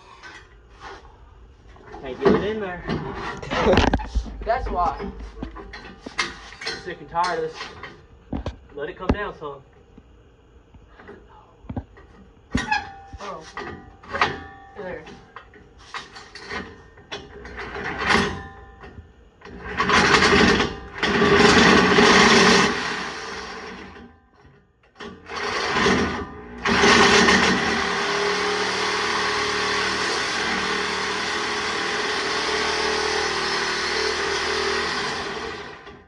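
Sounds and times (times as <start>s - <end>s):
power tool running: 19.5s - 24.0s, 25.0s - 36.0s.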